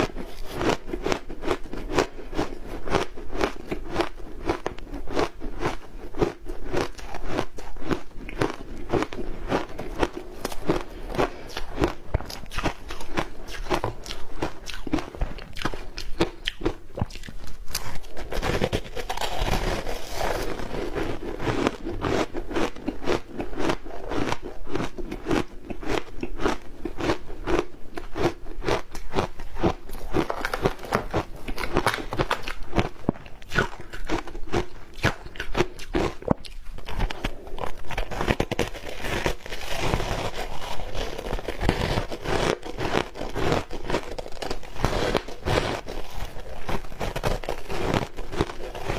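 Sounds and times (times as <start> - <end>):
ice crunching while chewed: 0.0 - 48.9.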